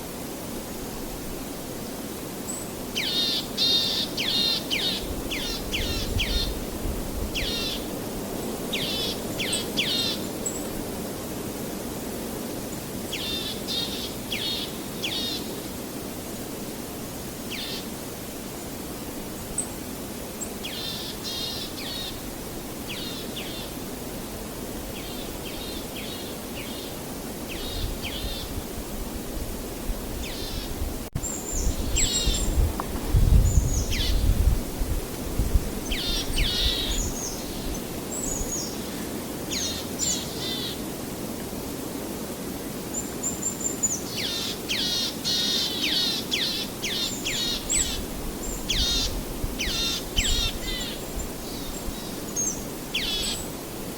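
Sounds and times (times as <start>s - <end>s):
outdoor background hiss: 0.0s - 53.9s
songbirds chirping: 35.8s - 40.9s.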